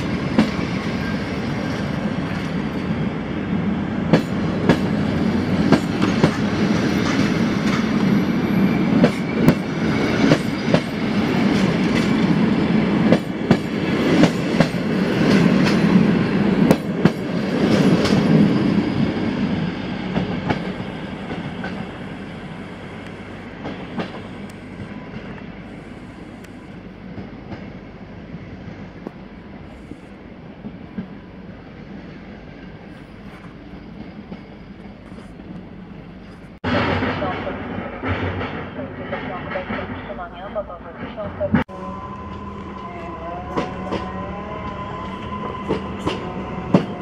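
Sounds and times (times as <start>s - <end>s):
train coaches rumbling past: 0.0s - 47.0s
wheels clacking over rail joints: 42.2s - 47.0s.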